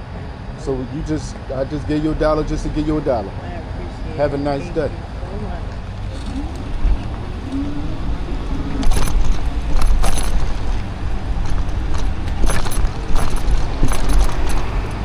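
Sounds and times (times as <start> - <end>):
wind on microphone: 5.0 - 15.0
bike frame rattling and knocking: 8.6 - 15.0.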